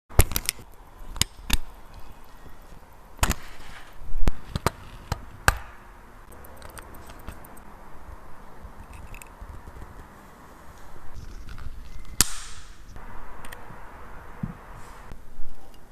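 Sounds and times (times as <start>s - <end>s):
small tools clicking and tapping: 6.3s - 7.6s.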